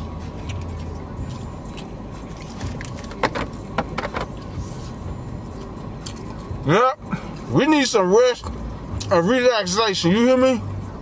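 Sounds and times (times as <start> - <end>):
low hum of car cabin: 0.0 - 11.0
chewing and mouth smacking: 0.1 - 6.6.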